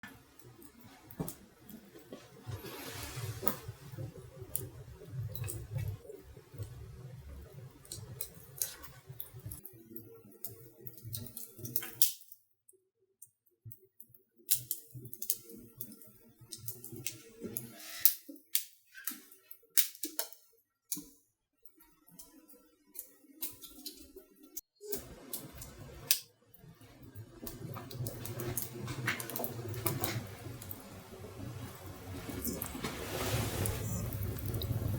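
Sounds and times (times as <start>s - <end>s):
wood fire crackling: 0.0s - 9.7s, 24.8s - 34.9s.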